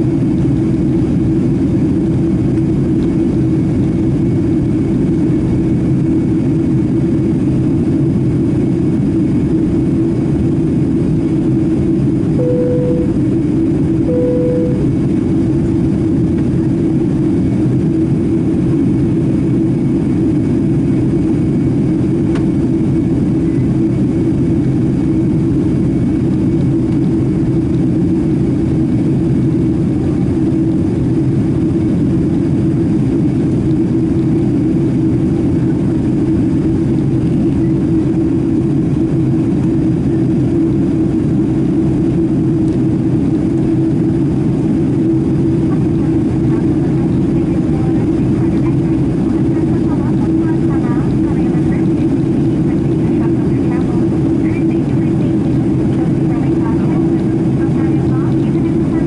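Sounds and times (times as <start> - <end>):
jet engines in cabin: 0.0 - 59.0
short steady tone: 12.4 - 13.4, 14.0 - 15.1.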